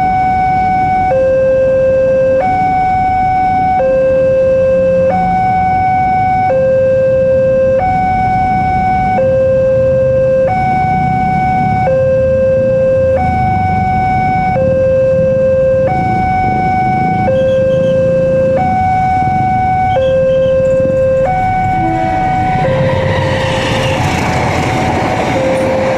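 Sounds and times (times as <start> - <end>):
level crossing alarm two-tone: 0.0 - 25.9
low rumble: 15.8 - 25.9.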